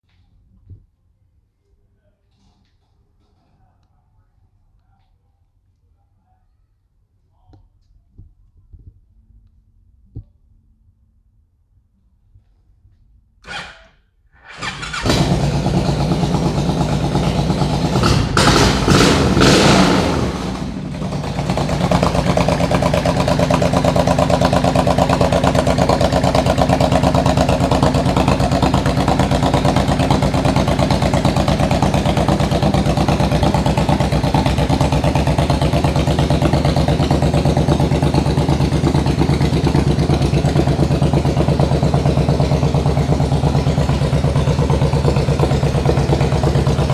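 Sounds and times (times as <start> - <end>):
motorcycle engine starting and idling: 14.4 - 46.9.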